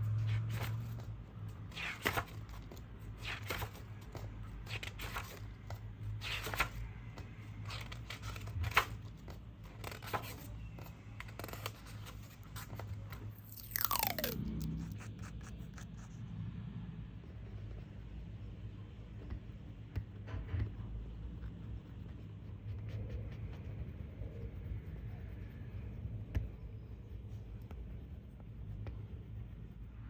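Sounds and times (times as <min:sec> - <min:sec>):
oil pastel scratching on paper: 0:09.7 - 0:16.4, 0:21.1 - 0:30.0
low steady hum: 0:12.3 - 0:30.0.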